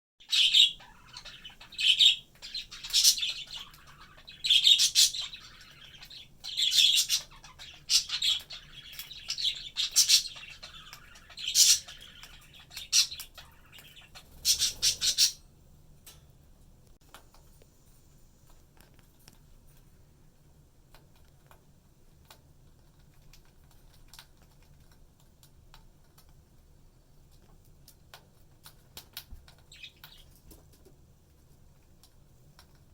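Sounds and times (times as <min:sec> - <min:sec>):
budgies chirping and squawking: 0:00.2 - 0:15.4, 0:29.2 - 0:30.4.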